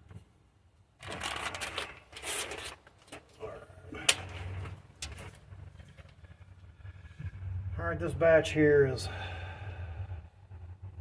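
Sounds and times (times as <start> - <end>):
wiring rustling: 1.0 - 6.7.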